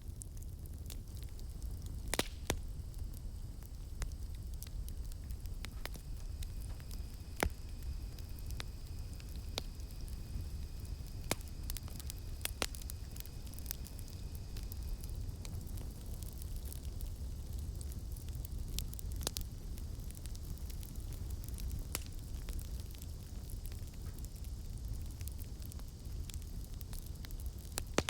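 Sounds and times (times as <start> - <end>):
campfire crackling and popping: 0.0 - 28.0
cicadas droning: 2.6 - 15.8.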